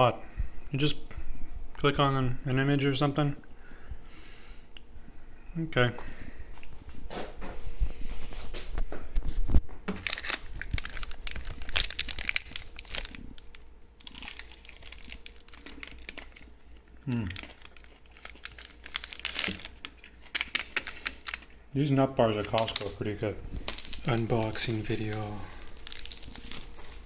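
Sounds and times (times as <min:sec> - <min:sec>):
plastic wrapping crinkling: 0:08.3 - 0:21.6, 0:22.2 - 0:27.0.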